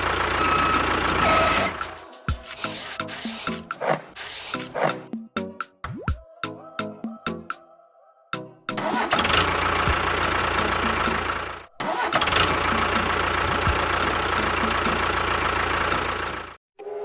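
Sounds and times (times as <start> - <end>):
engine running with low rumble: 0.0 - 2.1, 9.2 - 16.6.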